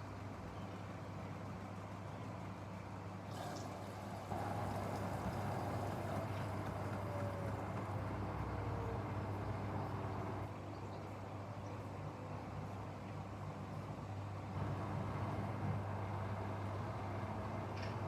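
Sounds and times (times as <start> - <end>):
washing machine hum: 3.2 - 10.6.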